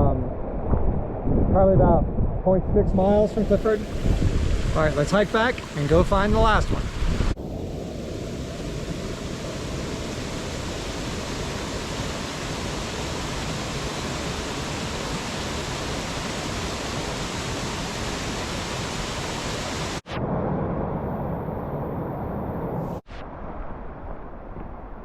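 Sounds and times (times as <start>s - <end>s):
waterfall rushing: 3.3s - 20.0s.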